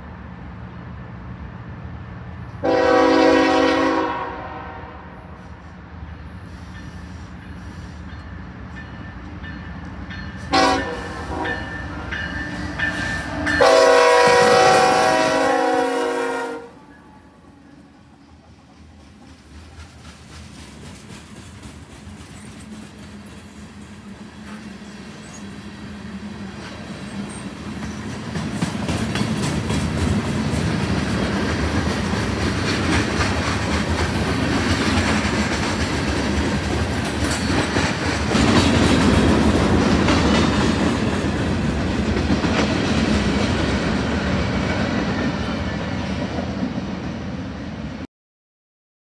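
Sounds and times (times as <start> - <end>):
train rumble: 0.0 - 48.1
train wheels clacking on rails: 6.2 - 15.3, 18.0 - 47.2.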